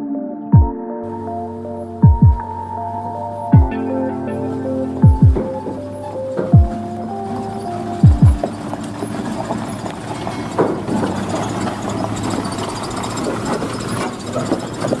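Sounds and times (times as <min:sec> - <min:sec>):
diesel truck engine running: 0:01.0 - 0:15.0
deep booms falling in pitch: 0:05.0 - 0:05.6.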